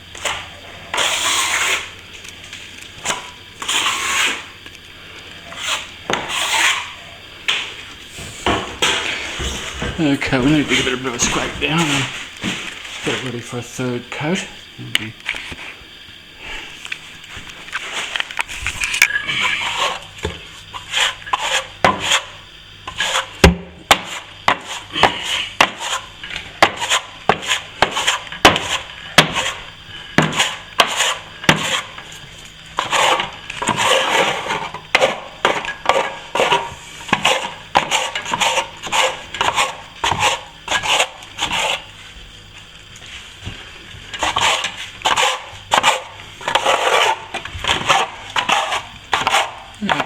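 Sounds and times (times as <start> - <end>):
scraper blade scraping plaster: 0.2 - 2.0, 3.0 - 4.6, 5.4 - 7.0, 17.6 - 20.1, 20.7 - 32.0, 32.8 - 41.9, 44.1 - 50.0.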